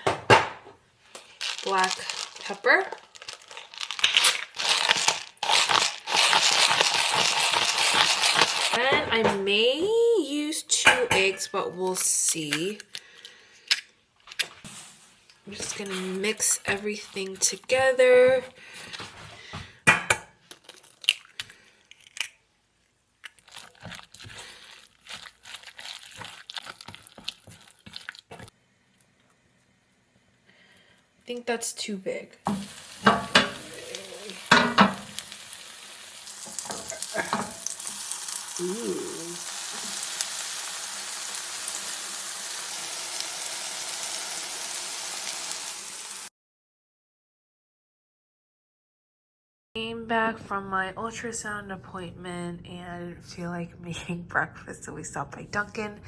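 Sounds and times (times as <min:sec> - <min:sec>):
food sizzling in a pan: 0:01.2 - 0:08.8, 0:32.5 - 0:46.3
food mixing in a bowl: 0:01.3 - 0:08.9, 0:15.4 - 0:19.2, 0:23.2 - 0:28.6.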